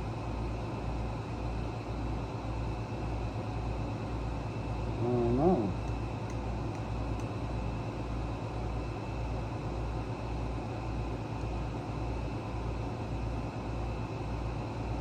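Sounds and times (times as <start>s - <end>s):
machine hum with low throb: 3.8s - 8.0s.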